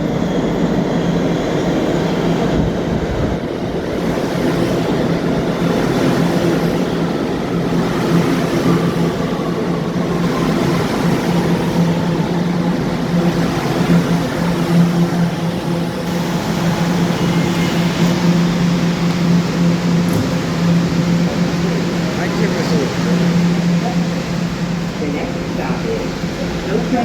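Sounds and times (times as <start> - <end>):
subway train running: 0.0 - 27.0.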